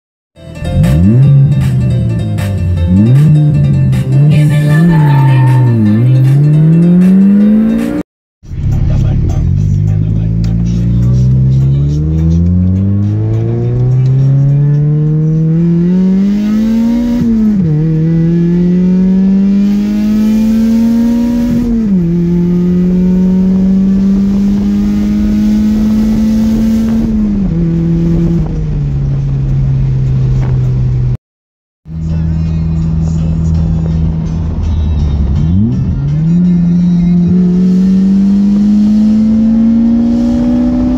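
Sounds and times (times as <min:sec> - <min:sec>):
car engine at full throttle: 0:00.6 - 0:31.2, 0:31.8 - 0:40.9.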